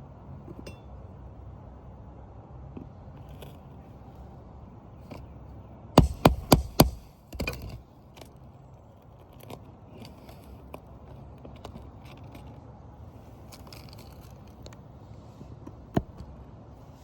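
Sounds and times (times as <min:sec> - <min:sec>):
clicks and scuffs on shingles: 0:05.0 - 0:16.4
hammer striking metal tool: 0:06.0 - 0:07.1
tool scraping: 0:06.0 - 0:07.8.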